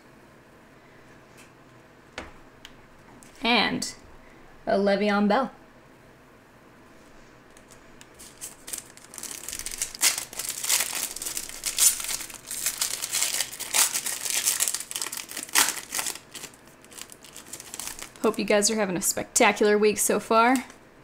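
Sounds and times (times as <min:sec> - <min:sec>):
plastic wrapper crinkling: 0:07.5 - 0:18.6
card pack being torn open: 0:08.1 - 0:18.3.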